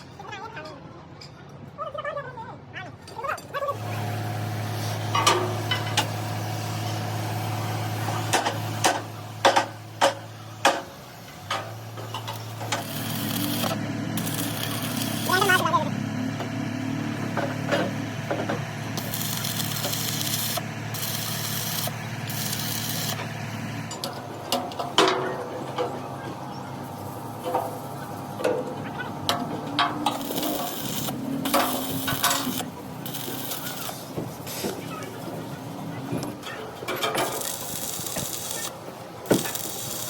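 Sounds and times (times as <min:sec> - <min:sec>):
machine humming: 0:11.2 - 0:34.3.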